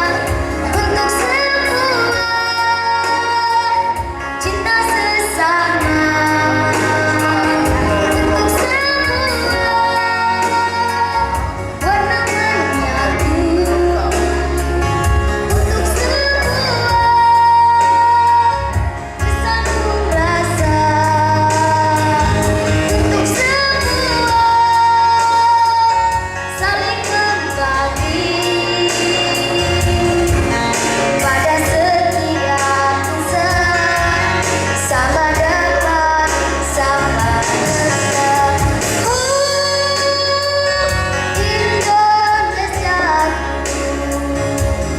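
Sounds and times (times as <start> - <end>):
band accompaniment with steady bass: 0.0 - 44.9.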